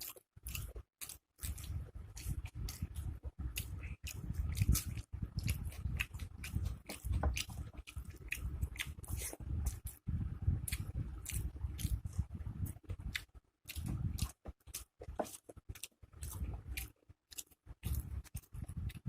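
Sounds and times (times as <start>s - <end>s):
crunching of fried food: 0.0s - 10.0s
wet chewing: 0.0s - 19.0s.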